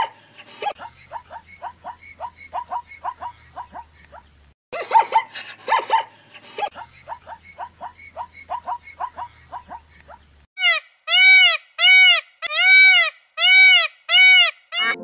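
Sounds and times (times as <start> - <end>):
zebra barking yelps: 0.0 - 6.1, 6.8 - 15.0
peafowl calls: 7.6 - 15.0.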